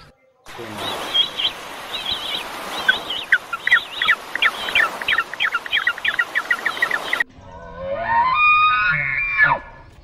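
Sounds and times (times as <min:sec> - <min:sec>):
steady background hiss: 0:00.5 - 0:07.2
bird chirping rapidly: 0:00.6 - 0:07.2.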